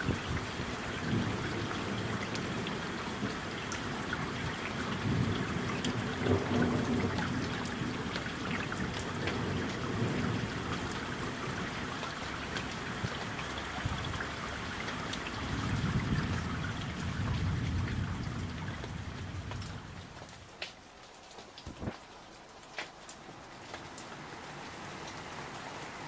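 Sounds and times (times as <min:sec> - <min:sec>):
low thunder rumble: 0:00.0 - 0:10.9, 0:15.4 - 0:20.5
raindrops ticking close by: 0:00.0 - 0:26.0
steady rain: 0:00.0 - 0:26.0.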